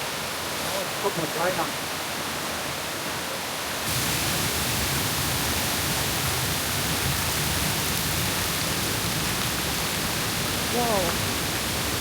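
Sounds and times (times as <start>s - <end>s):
waterfall rushing: 3.9s - 12.0s.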